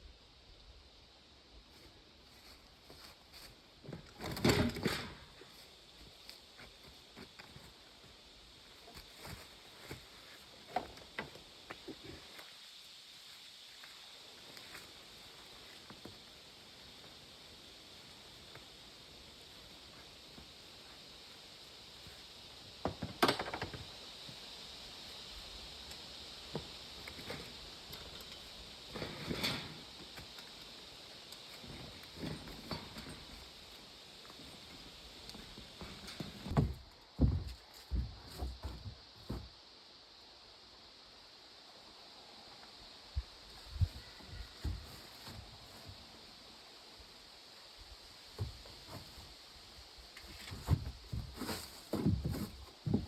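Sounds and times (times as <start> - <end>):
steady hiss: 0.0 - 53.0
knocks and thuds: 36.4 - 39.5.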